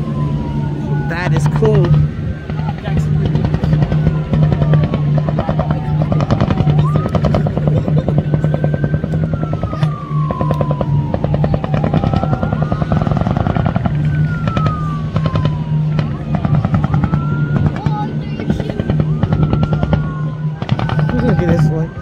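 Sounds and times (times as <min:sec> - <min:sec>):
helicopter rotor chop: 0:00.0 - 0:22.0
helicopter turbine whine: 0:00.0 - 0:22.0.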